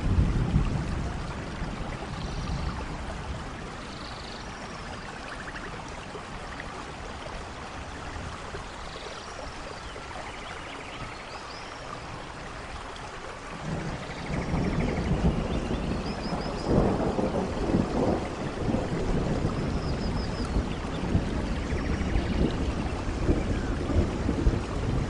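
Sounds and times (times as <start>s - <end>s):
low thunder rumble: 0.0s - 4.0s, 13.5s - 25.0s
rain falling in a forest: 0.0s - 25.0s.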